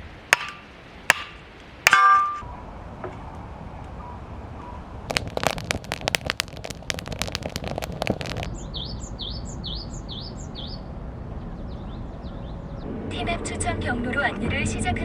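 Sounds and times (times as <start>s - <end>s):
sharp irregular cracks: 5.1s - 8.5s
bird chirping: 7.4s - 12.8s.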